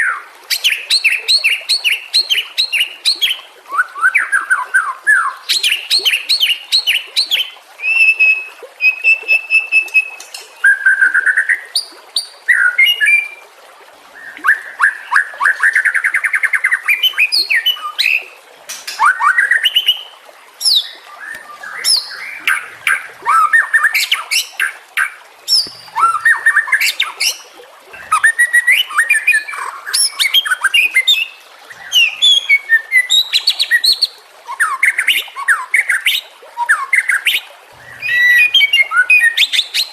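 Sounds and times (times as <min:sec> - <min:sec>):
bird singing varied song: 0:14.2 - 0:39.9.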